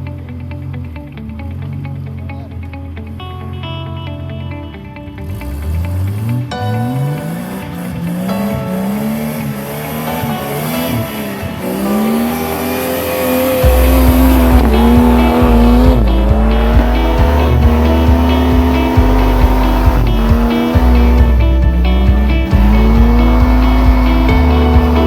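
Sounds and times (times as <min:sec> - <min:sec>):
engine revving hard: 0:05.2 - 0:25.0
music with heavy bass beat: 0:05.7 - 0:25.0.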